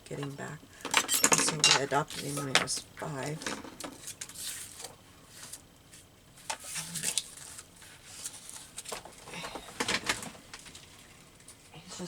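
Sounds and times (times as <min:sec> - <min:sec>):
paper rustling: 0:04.0 - 0:10.9.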